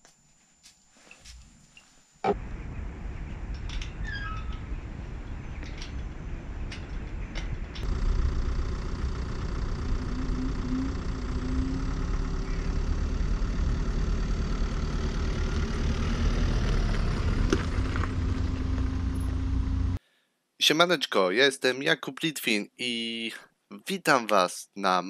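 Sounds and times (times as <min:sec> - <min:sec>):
faint steady hum: 0:00.0 - 0:20.5
car engine rumbling: 0:02.3 - 0:20.0.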